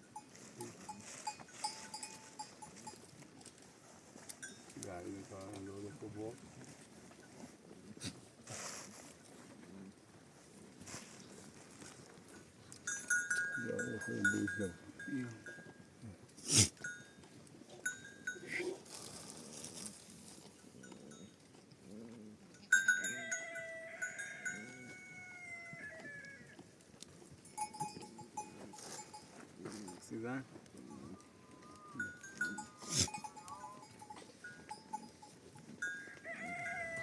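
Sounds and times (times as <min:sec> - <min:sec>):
animal bells clinking: 0:00.0 - 0:06.5, 0:11.6 - 0:16.0, 0:16.7 - 0:37.0
sheep and goats bleating: 0:12.9 - 0:15.6, 0:22.5 - 0:26.7, 0:30.8 - 0:37.0.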